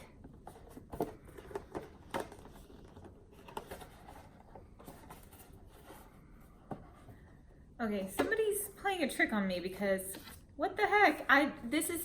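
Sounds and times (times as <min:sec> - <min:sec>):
faint rustling of box contents: 0:00.0 - 0:07.5.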